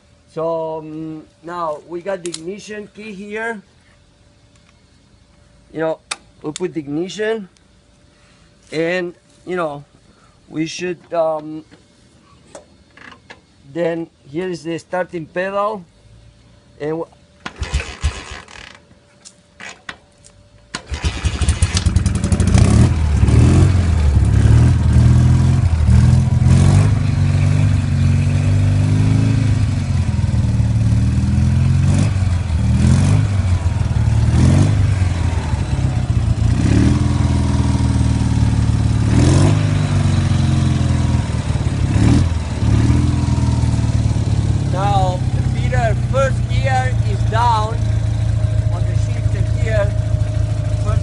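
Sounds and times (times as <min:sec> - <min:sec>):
motorcycle engine kick-started: 0:17.4 - 0:18.8, 0:20.7 - 0:24.8, 0:43.5 - 0:51.0
motorcycle engine revving: 0:17.5 - 0:18.8, 0:20.8 - 0:51.0.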